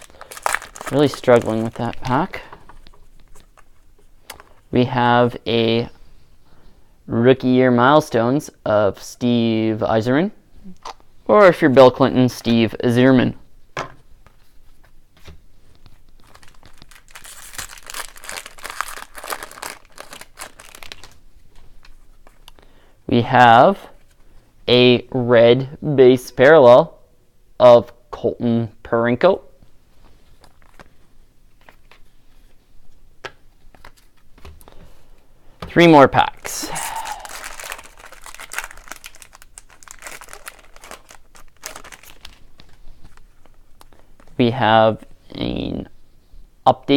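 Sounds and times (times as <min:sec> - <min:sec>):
plastic wrapper crinkling: 0:00.0 - 0:04.6, 0:16.2 - 0:21.2, 0:36.4 - 0:43.6.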